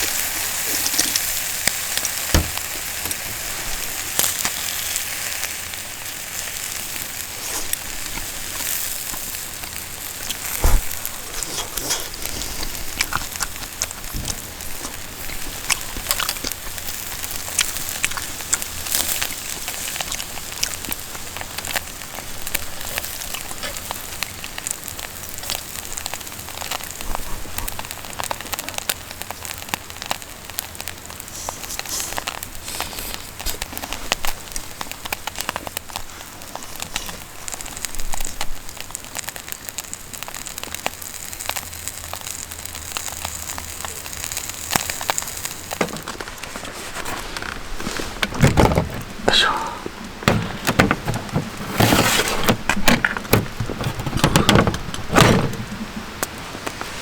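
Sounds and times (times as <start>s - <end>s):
campfire crackling and hissing: 0.0s - 57.0s
knocks from fire: 2.3s - 3.2s, 50.2s - 55.8s.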